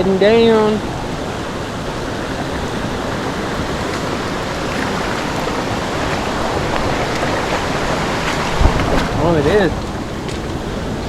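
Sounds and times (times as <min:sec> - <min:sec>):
creek water rushing over rocks: 0:02.8 - 0:10.6.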